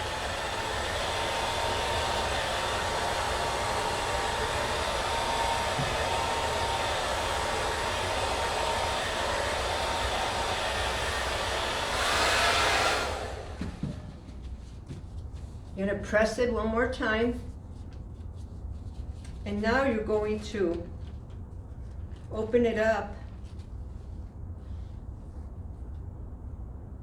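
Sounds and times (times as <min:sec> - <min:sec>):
blow dryer running: 0:00.0 - 0:15.8.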